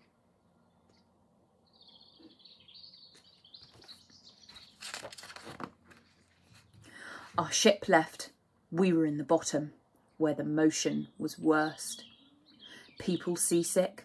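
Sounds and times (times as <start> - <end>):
faint bird chirping: 0.0 - 5.1, 10.8 - 13.9.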